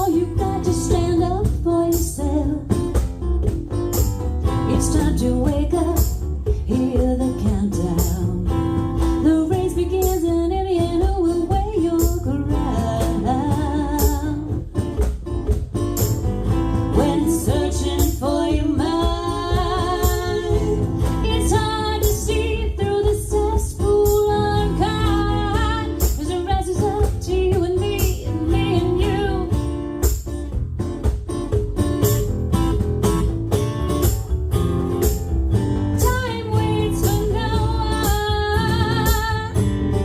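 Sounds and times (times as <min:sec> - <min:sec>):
woman singing: 0:00.0 - 0:03.0, 0:04.6 - 0:14.7, 0:16.8 - 0:29.8, 0:36.0 - 0:40.0
guitar accompaniment: 0:00.0 - 0:40.0.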